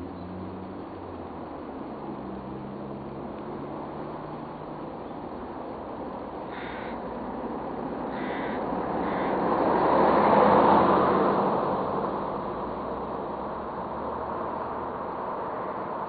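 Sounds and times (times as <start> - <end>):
bird calling: 6.4 - 7.0, 8.0 - 9.5
rushing noise: 6.4 - 12.6.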